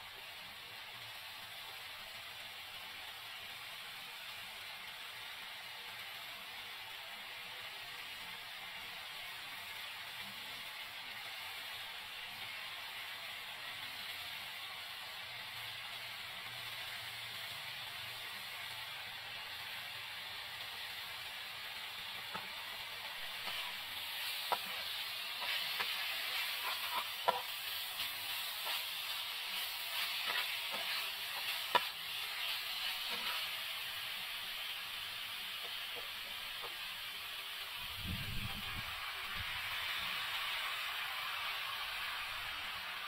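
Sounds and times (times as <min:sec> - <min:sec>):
meat sizzling in a frying pan: 0:00.0 - 0:43.0
metal spatula scraping a pan: 0:23.3 - 0:33.6.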